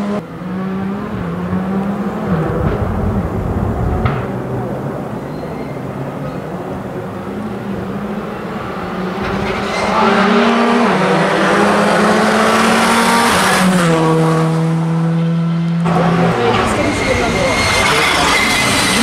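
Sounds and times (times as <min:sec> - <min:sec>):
rally car engine at high revs: 0:00.0 - 0:03.1, 0:07.2 - 0:19.0.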